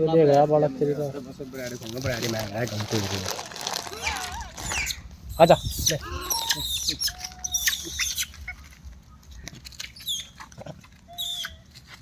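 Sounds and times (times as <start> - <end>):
animal squeaks and chirps: 4.0 - 11.8.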